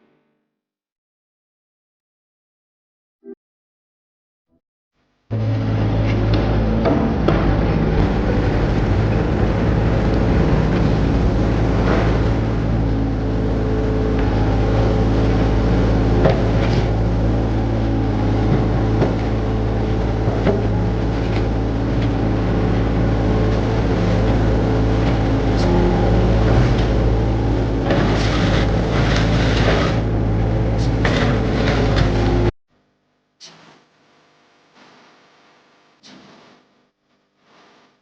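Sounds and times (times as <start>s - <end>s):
excavator diesel engine running: 5.3s - 32.5s
loud noisy bursts: 5.3s - 32.5s
machine knocks and clanks: 6.1s - 12.9s.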